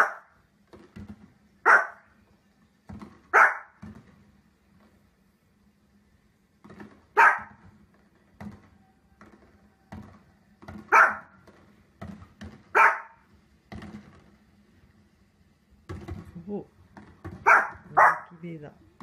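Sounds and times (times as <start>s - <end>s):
small dog barking: 0.0s - 0.4s, 1.6s - 2.1s, 3.3s - 3.8s, 7.2s - 7.6s, 10.9s - 11.4s, 12.7s - 13.2s, 17.4s - 18.4s.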